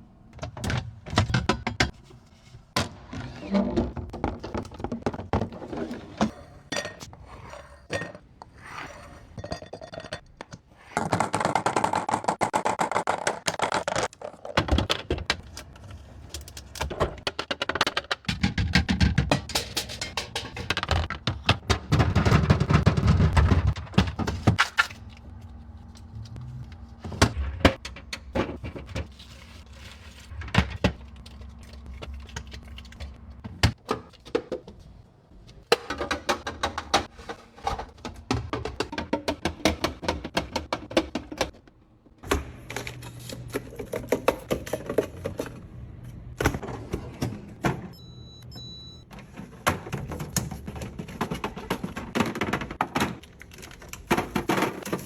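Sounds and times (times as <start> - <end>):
containers knocking and clicking: 35.6 - 41.7, 42.7 - 45.6.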